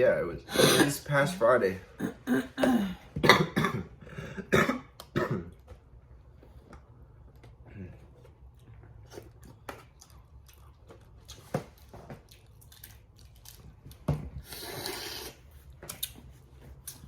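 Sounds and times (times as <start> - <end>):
wet squishing and chewing: 5.0 - 17.0
slurping: 14.4 - 16.1.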